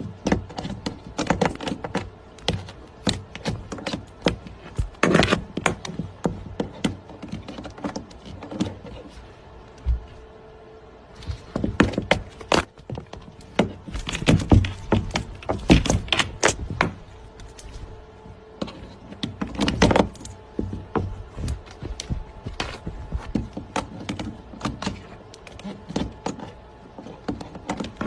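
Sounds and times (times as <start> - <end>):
rapid knocks and clatters: 11.2 - 17.8, 18.6 - 28.0.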